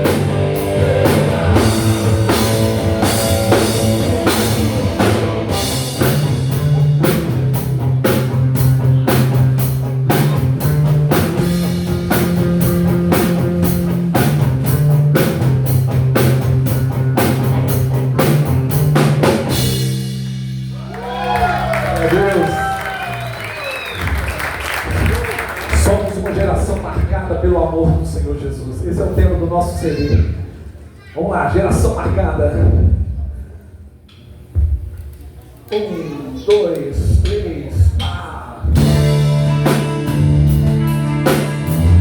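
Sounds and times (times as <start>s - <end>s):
distorted electric guitar: 0.0s - 19.8s
bass guitar: 0.0s - 26.7s, 37.8s - 42.0s
drum kit beat: 0.0s - 27.2s, 37.0s - 42.0s.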